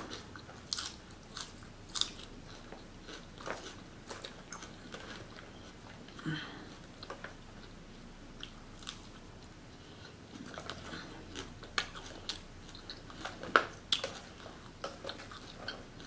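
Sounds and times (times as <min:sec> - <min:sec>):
chewing and crunching salad: 0:00.0 - 0:16.0.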